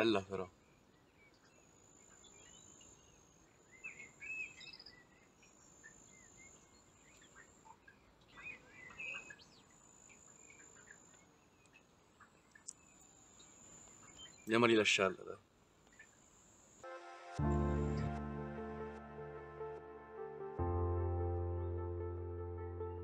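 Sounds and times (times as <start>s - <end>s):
birds chirping: 0.0s - 16.8s.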